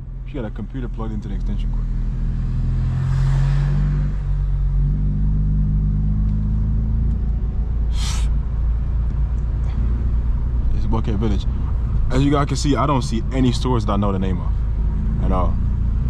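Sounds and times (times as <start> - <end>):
deep car exhaust rumble: 0.0 - 16.0
short hiss: 7.9 - 8.3.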